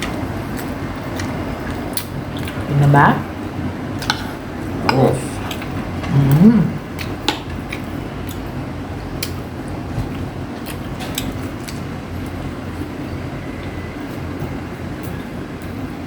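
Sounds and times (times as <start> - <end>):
low rumbling background noise: 0.0 - 16.0
chewing clicks and smacks: 7.0 - 8.4, 9.2 - 9.4.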